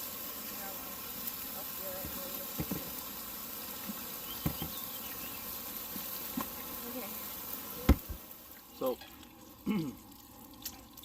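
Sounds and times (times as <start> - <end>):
steady hiss: 0.0 - 9.7.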